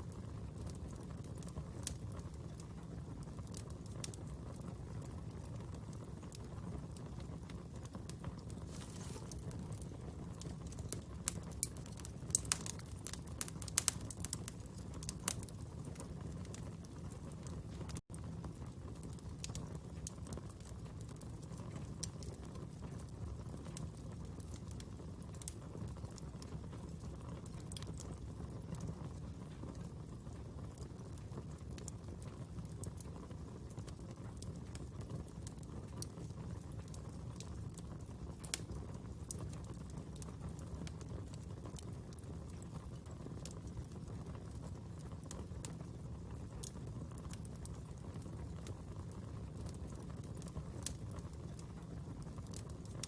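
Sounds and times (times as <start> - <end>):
fire crackles and pops: 0.0 - 53.0
wood fire rushing: 0.3 - 23.3.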